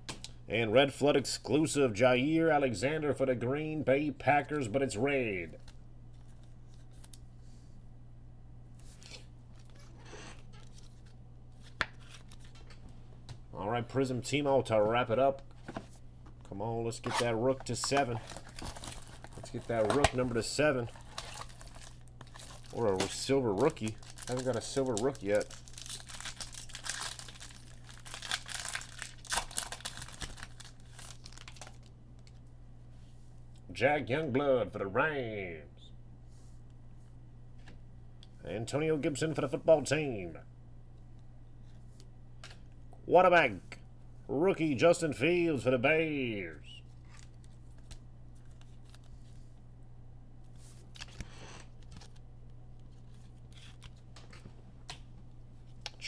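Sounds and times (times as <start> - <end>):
steady low hum: 0.0 - 56.0
cards being handled: 8.8 - 13.4, 17.0 - 32.4, 46.9 - 49.6, 50.5 - 52.2, 52.8 - 55.1
foil wrapper crinkling: 10.5 - 12.7, 17.2 - 32.4, 46.9 - 49.5.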